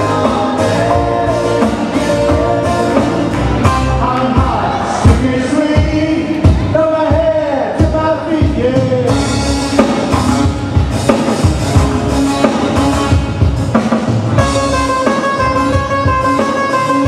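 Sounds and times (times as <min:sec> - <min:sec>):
person singing: 0:00.0 - 0:09.2
drum beat: 0:00.0 - 0:16.6
guitar: 0:00.0 - 0:17.0.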